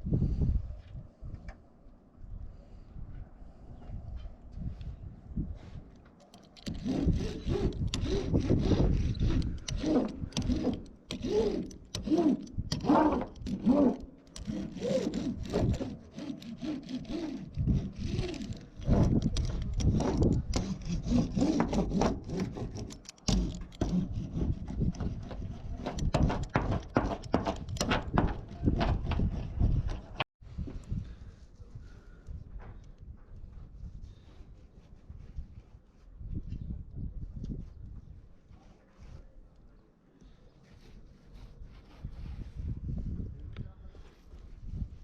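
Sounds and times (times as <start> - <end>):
scraping and rubbing strokes: 5.6 - 30.3, 40.6 - 43.2.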